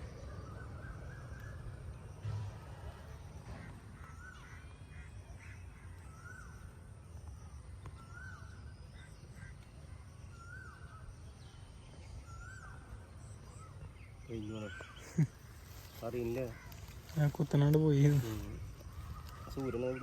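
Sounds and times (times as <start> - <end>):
crow cawing: 3.6 - 6.4, 16.2 - 17.4.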